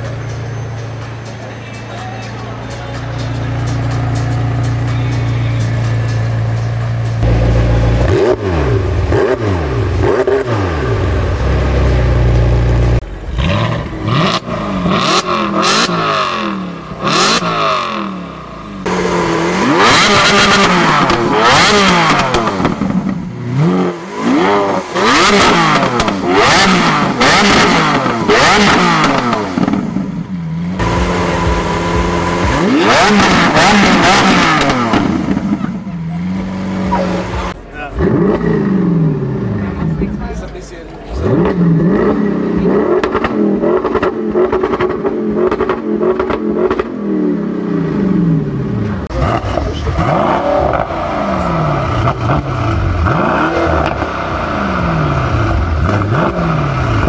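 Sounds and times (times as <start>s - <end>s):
supercar engines revving: 0.0s - 57.0s.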